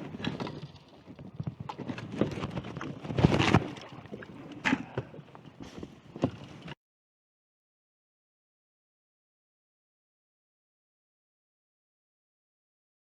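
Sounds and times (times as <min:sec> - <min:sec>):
plastic kayak knocks and scrapes: 0:00.0 - 0:06.8.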